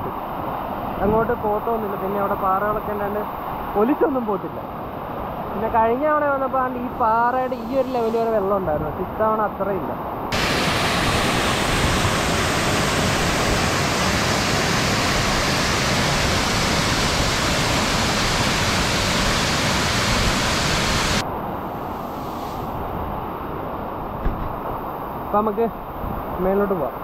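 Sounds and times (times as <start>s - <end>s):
flowing water: 10.3s - 21.2s
waterfall rushing: 10.3s - 21.2s.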